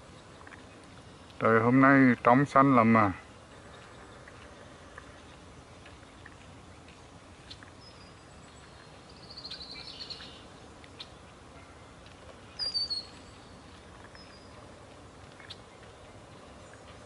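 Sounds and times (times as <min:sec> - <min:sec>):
faint background hiss: 0:00.0 - 0:17.0
birds calling: 0:02.8 - 0:17.0.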